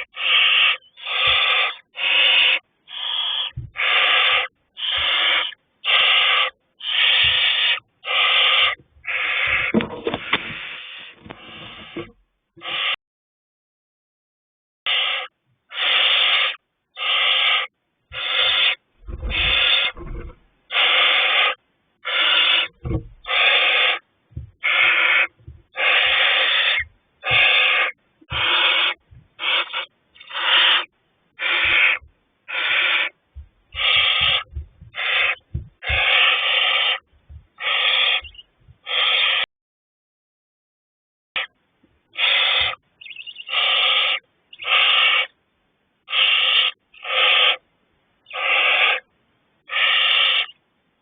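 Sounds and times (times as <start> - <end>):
owlets hissing begging calls: 0.0 - 12.0, 12.6 - 13.0, 14.9 - 20.1, 20.7 - 39.5, 42.2 - 45.4, 46.1 - 47.6, 48.3 - 49.1, 49.7 - 50.6
chicks thumping in nest box: 9.0 - 12.1, 33.4 - 36.3.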